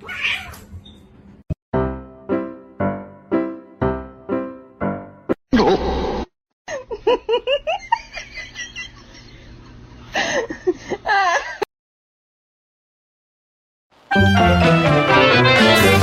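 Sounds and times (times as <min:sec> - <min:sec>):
person giggling: 0:05.5 - 0:06.0, 0:06.7 - 0:11.7.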